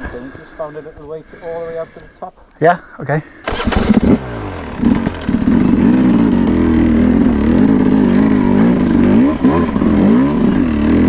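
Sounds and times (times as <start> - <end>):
dirt bike engine revving: 3.4 - 11.0.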